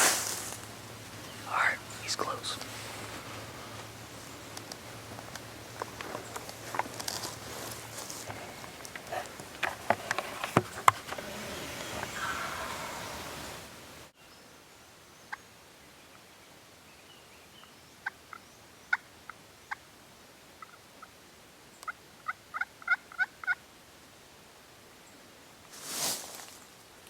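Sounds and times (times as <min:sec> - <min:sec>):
turkey gobbling: 0:11.2 - 0:13.6, 0:22.2 - 0:23.6.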